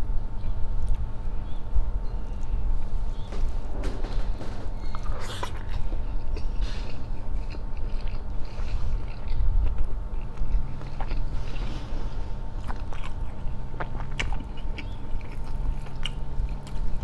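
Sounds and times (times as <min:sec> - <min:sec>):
faint steady hum: 0:00.0 - 0:17.0
man chewing: 0:04.8 - 0:17.0.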